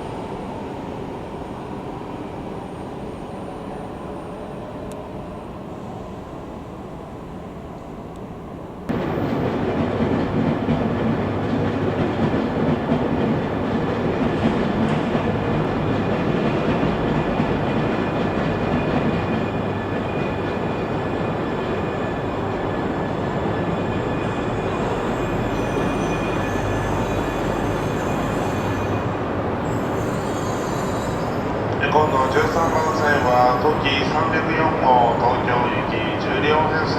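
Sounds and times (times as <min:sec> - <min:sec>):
train wheels rushing and rumbling: 0:08.9 - 0:36.9.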